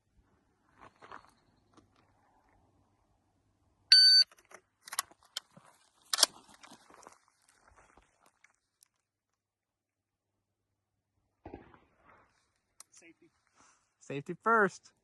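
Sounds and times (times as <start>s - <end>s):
shot timer beep: 3.9s - 4.3s
metallic rifle clicks and clacks: 4.3s - 5.5s, 6.1s - 6.4s.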